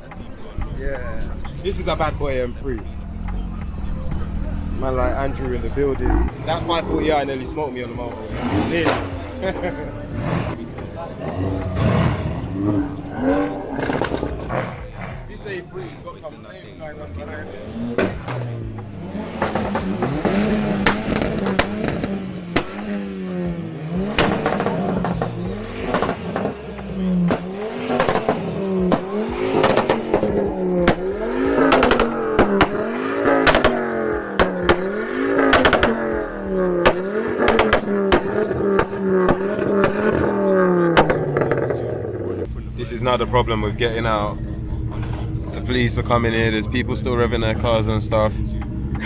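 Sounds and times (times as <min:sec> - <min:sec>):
car engine revving: 0:00.0 - 0:49.0
exhaust pops and cracks: 0:13.7 - 0:14.9, 0:17.8 - 0:42.5.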